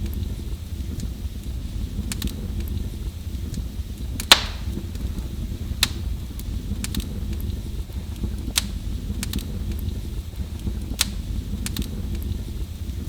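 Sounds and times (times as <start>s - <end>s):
fire crackling in fireplace: 0.0s - 13.0s
loud sharp pop: 4.3s - 4.8s.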